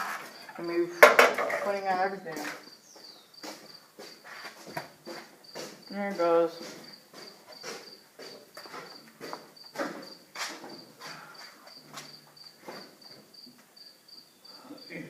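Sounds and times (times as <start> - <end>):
cricket chirping: 0.0 - 15.0
knocks and clunks: 1.0 - 1.9.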